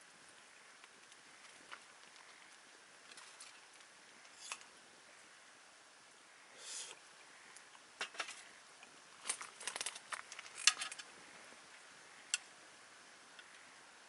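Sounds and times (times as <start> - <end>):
campfire crackling and popping: 0.0 - 4.8.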